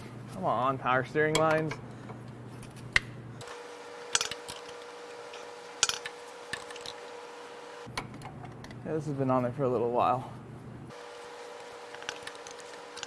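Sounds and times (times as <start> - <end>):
faint steady hum: 1.7 - 9.1, 10.2 - 13.0
metal tools clinking: 3.4 - 7.1, 10.9 - 13.0.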